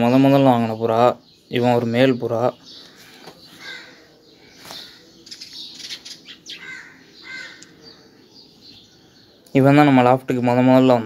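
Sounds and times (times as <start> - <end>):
faint birds chirping: 0.0 - 11.0
rustling and handling noise: 4.6 - 5.0.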